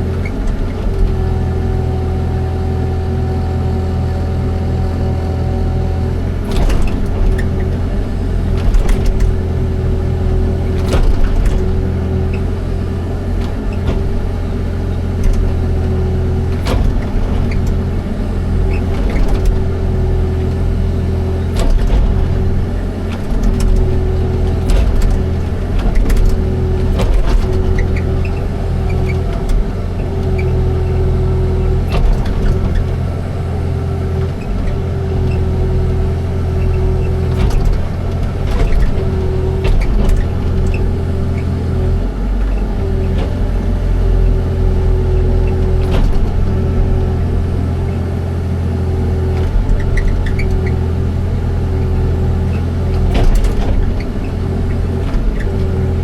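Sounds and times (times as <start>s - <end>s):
diesel engine under load: 0.0s - 56.0s
sharp knocks and clanks: 52.9s - 56.0s.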